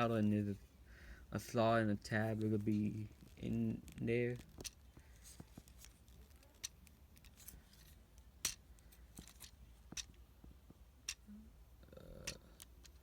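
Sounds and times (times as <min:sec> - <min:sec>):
plastic toy parts clicking: 0:03.9 - 0:10.2, 0:12.2 - 0:13.0.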